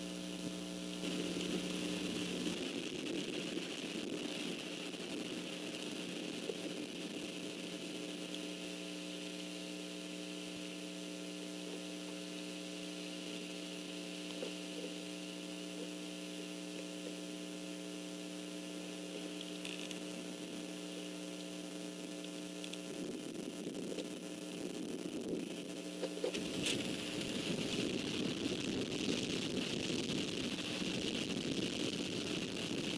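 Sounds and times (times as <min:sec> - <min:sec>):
electrical mains hum: 0:00.0 - 0:32.9
faint ticks: 0:21.4 - 0:22.9.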